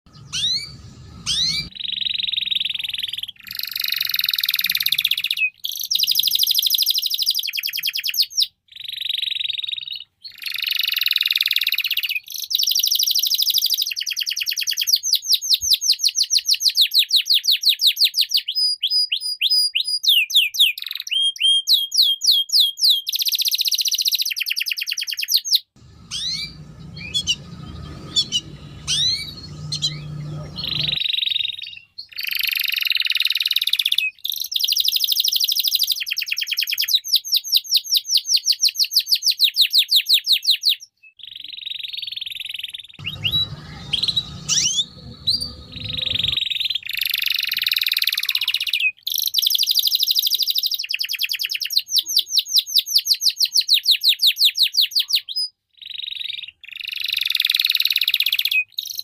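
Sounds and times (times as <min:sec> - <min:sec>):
low hum: 0:00.1 - 0:01.7, 0:25.8 - 0:31.0, 0:43.0 - 0:46.4
canary singing trills: 0:00.1 - 0:59.0.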